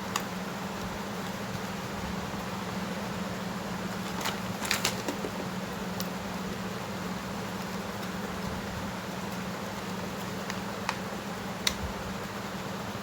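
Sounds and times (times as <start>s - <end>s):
steady low hum: 0.0s - 13.0s
sharp clicks: 11.6s - 11.8s.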